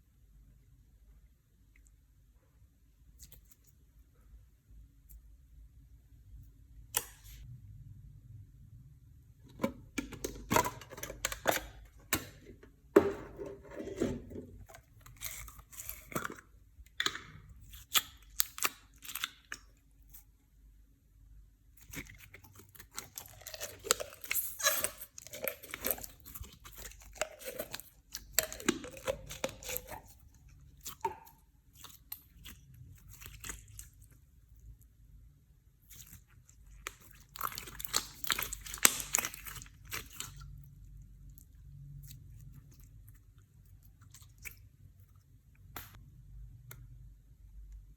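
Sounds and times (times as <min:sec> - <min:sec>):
slime squished by hand: 0:35.8 - 0:40.6.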